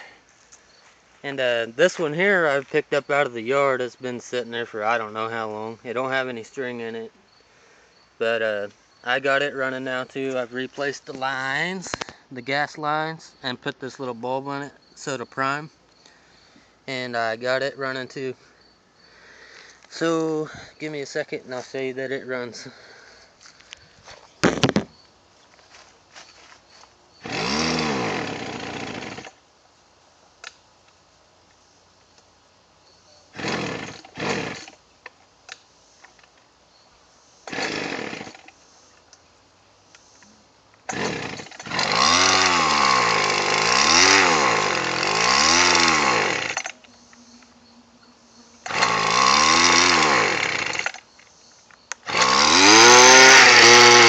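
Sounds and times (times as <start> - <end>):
string trimmer engine revving: 27.2 - 29.4, 33.3 - 34.8, 37.5 - 38.5, 40.9 - 46.8, 48.5 - 51.0, 52.0 - 54.0.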